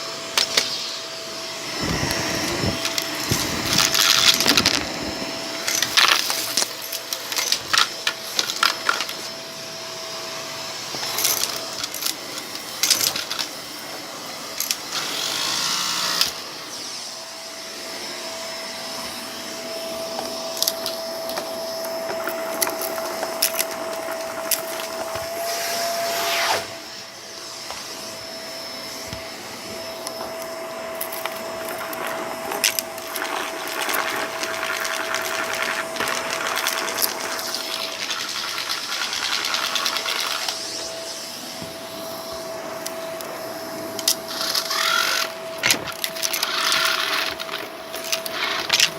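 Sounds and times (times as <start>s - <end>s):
vacuum cleaner running: 0.0s - 48.9s
debris crackling in vacuum: 1.6s - 9.2s, 31.0s - 40.7s.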